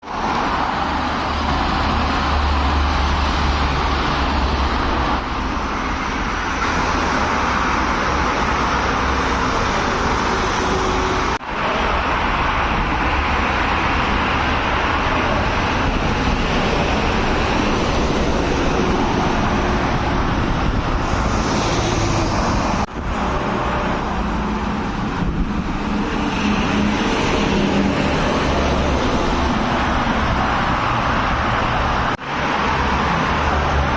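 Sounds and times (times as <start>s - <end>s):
highway traffic noise: 0.0s - 33.9s.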